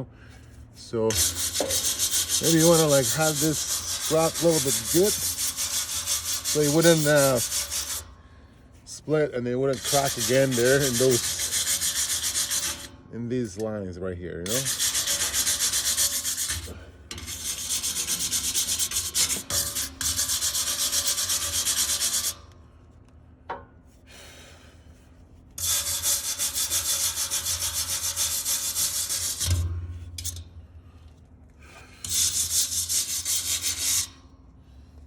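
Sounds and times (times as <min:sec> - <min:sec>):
hand sanding metal pipe: 0:00.8 - 0:08.2, 0:08.8 - 0:13.7, 0:14.4 - 0:22.5, 0:25.6 - 0:30.5, 0:32.0 - 0:34.3.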